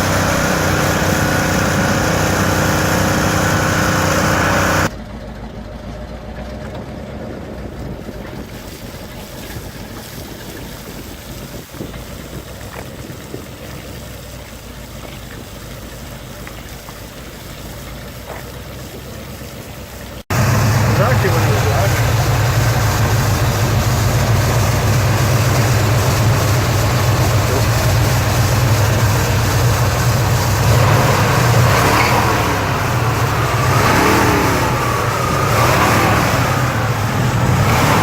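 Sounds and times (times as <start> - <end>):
truck engine droning: 0.0 - 9.6, 12.0 - 38.0
low rumble with rushing noise: 20.3 - 38.0.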